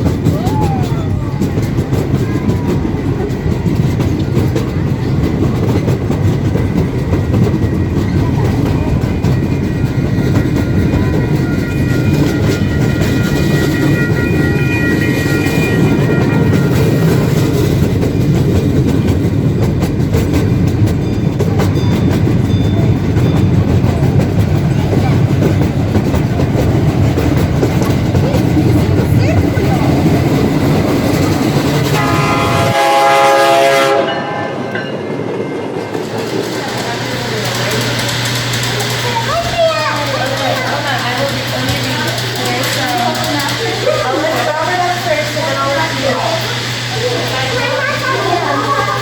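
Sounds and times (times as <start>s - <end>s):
train wheels clacking on rails: 0.0s - 49.0s.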